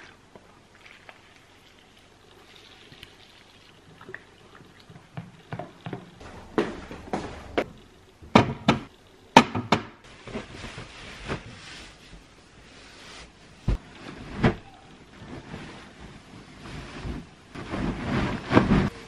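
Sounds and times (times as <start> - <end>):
irregular knocks and clatters: 4.9 - 9.9.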